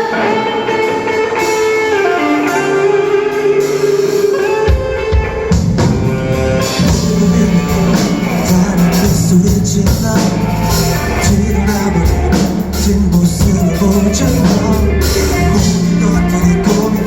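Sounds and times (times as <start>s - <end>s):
guitar holding melody notes: 0.0s - 17.0s
live band playing instrumental: 0.0s - 17.0s.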